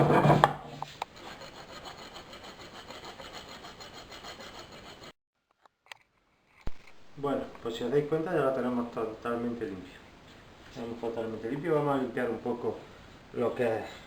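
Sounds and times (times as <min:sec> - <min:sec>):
rasp filing metal pipe: 0:01.2 - 0:05.2.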